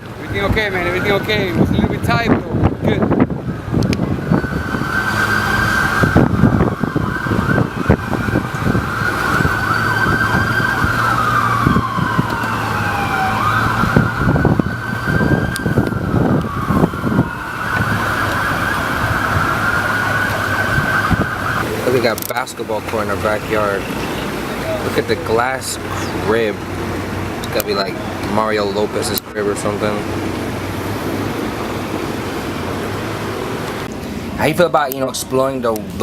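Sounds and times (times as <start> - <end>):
wind buffeting: 0.0 - 36.0
siren wailing: 0.1 - 2.0, 3.3 - 21.9, 23.0 - 28.2.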